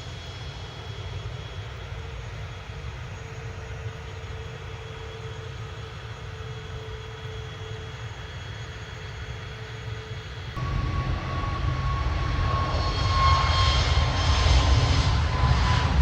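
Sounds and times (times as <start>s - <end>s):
airliner engine rumble: 0.0s - 16.0s
high engine whine: 10.6s - 16.0s.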